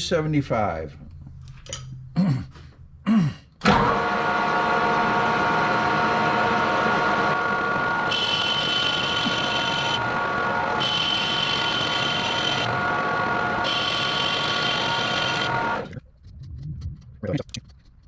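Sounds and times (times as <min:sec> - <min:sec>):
metal lathe humming: 0:03.8 - 0:15.9
high-pitched whine: 0:07.2 - 0:16.0.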